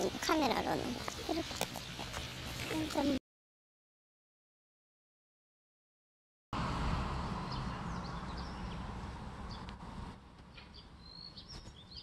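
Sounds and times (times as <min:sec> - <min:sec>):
outdoor background noise: 0:00.0 - 0:03.2, 0:06.6 - 0:12.0
small birds chirping: 0:00.0 - 0:03.2, 0:07.5 - 0:09.8, 0:10.5 - 0:12.0
wind rumble on microphone: 0:06.6 - 0:12.0.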